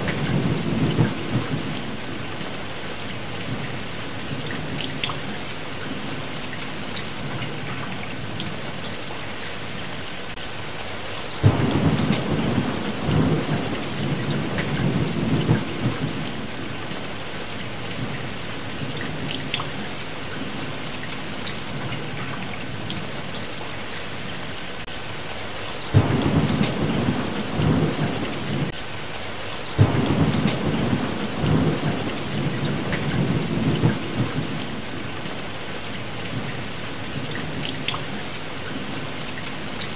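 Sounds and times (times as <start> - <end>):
heavy rain: 0.0 - 39.9
thunder rumbling: 11.4 - 16.8, 25.9 - 28.8, 29.8 - 35.2.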